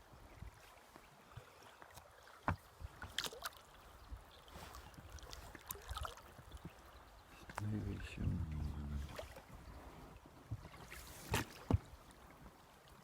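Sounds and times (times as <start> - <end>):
water lapping against boat: 0.1 - 13.0
knocks on boat: 11.3 - 11.9.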